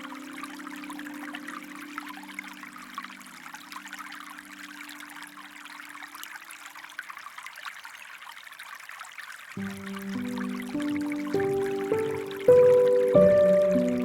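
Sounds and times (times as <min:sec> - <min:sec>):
stream water trickling: 0:00.0 - 0:14.0
held musical chord: 0:09.6 - 0:14.0.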